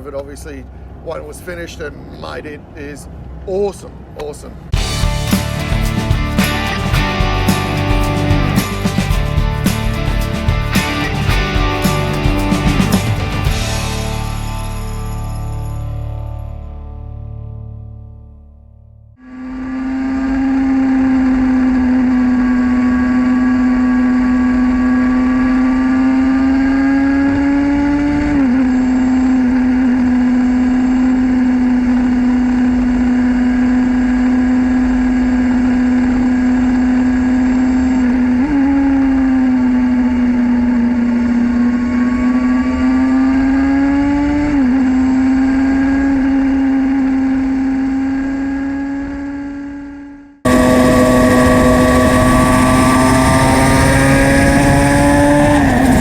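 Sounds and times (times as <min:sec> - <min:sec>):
motorcycle engine shifting gears: 0:19.4 - 0:56.0.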